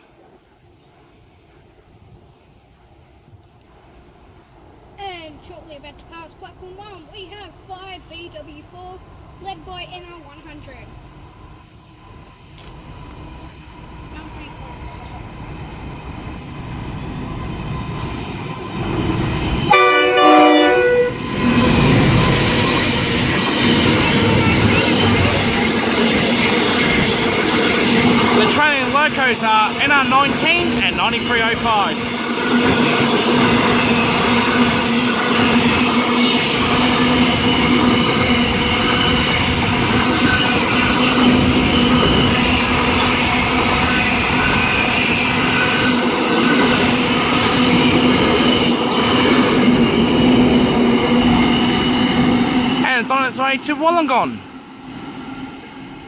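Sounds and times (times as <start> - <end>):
freight train passing: 0.0 - 56.0
locomotive horn blast: 19.7 - 21.2.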